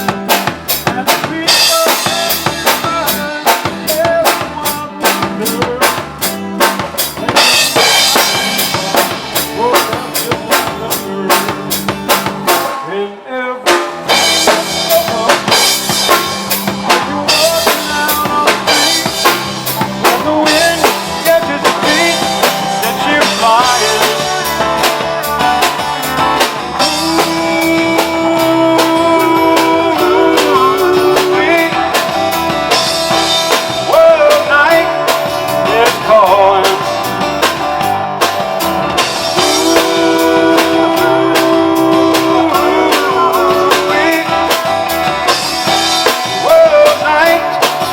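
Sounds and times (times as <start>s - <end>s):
drum kit beat: 0.0s - 13.0s, 13.6s - 47.9s
live rock band playing: 0.0s - 47.9s
electric guitar lead lines: 14.0s - 47.9s.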